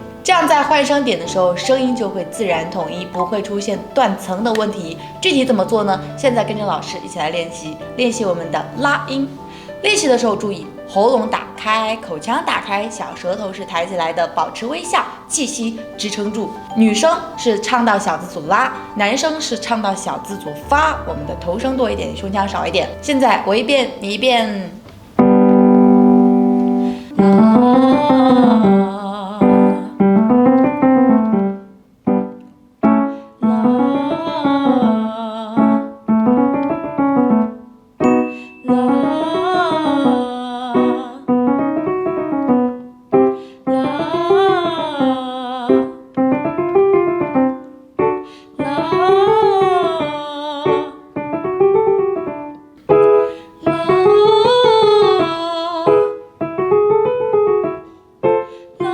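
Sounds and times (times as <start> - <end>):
piano accompaniment: 0.0 - 58.9
woman singing scales: 11.2 - 24.8, 26.6 - 30.4, 33.4 - 36.0, 38.3 - 41.4, 43.7 - 46.1, 48.6 - 51.1, 53.2 - 56.2.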